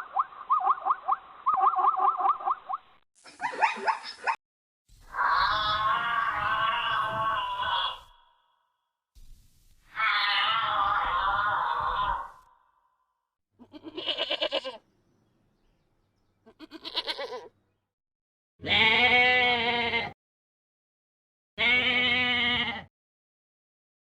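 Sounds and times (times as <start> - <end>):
livestock bleating: 5.2 - 8.2, 10.0 - 12.4, 13.6 - 14.8, 16.5 - 17.5, 18.6 - 20.2, 21.6 - 22.9.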